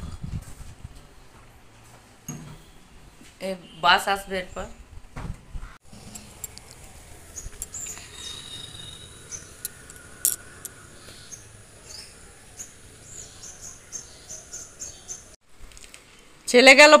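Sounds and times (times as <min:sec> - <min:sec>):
thin high tone: 0:05.9 - 0:14.0
small birds chirping: 0:06.0 - 0:15.4.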